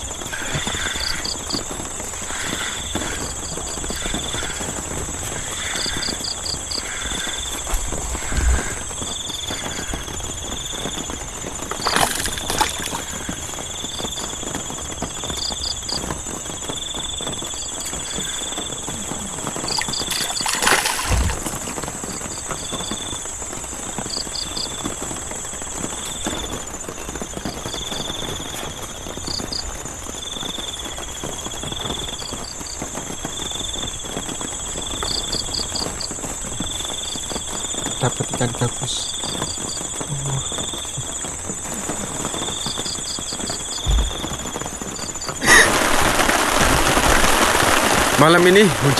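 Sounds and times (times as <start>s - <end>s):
heavy rain hiss: 0.0s - 48.9s
low repeating frog call: 0.2s - 1.6s, 2.2s - 10.2s, 11.7s - 14.0s, 17.8s - 22.7s.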